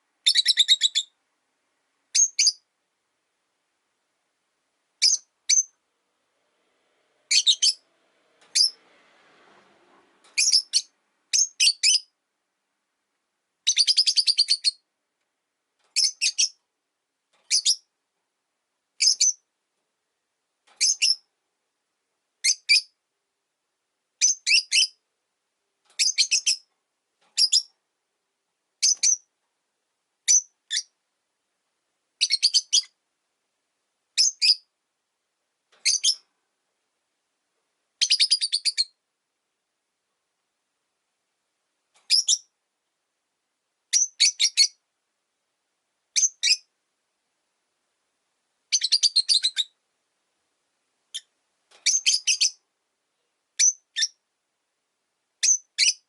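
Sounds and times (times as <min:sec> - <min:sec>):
lovebirds chirping: 0:00.2 - 0:01.2, 0:02.1 - 0:02.7, 0:05.0 - 0:05.8, 0:07.3 - 0:07.8, 0:08.5 - 0:08.8, 0:10.3 - 0:12.2, 0:13.6 - 0:14.9, 0:15.9 - 0:16.6, 0:17.5 - 0:17.9, 0:19.0 - 0:19.5, 0:20.8 - 0:21.3, 0:22.4 - 0:23.0, 0:24.2 - 0:25.0, 0:26.0 - 0:26.7, 0:27.4 - 0:27.7, 0:28.8 - 0:29.3, 0:30.3 - 0:31.0, 0:32.2 - 0:33.0, 0:34.1 - 0:34.7, 0:35.8 - 0:36.3, 0:38.0 - 0:39.0, 0:42.0 - 0:42.6, 0:43.9 - 0:44.8, 0:46.1 - 0:46.7, 0:48.7 - 0:49.8, 0:51.1 - 0:52.6, 0:53.6 - 0:54.2, 0:55.4 - 0:56.0.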